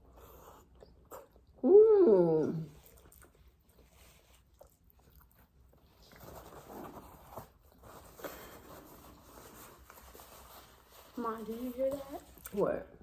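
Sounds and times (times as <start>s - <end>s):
chewing and crunching: 2.6s - 8.2s.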